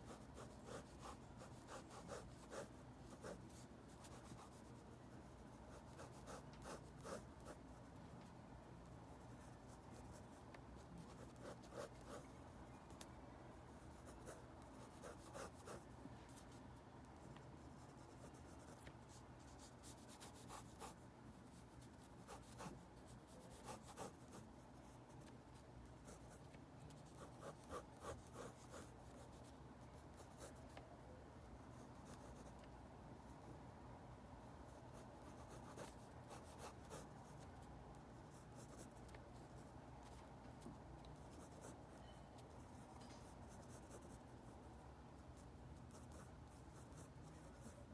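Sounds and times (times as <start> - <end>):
pencil scratching on paper: 0.0 - 4.8, 5.7 - 7.6, 11.0 - 12.3, 13.8 - 15.8, 21.8 - 25.3, 27.0 - 29.5, 35.2 - 37.4, 45.8 - 47.8.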